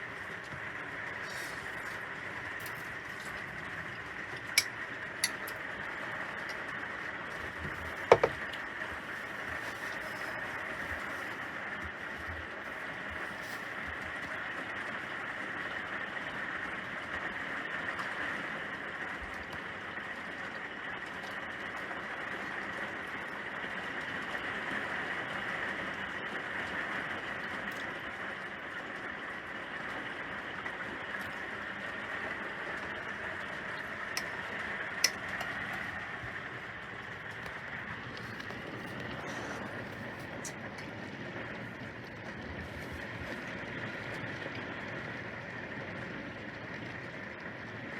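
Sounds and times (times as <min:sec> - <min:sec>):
steady rain hiss: 0:00.0 - 0:47.9
raindrop taps: 0:07.3 - 0:09.9.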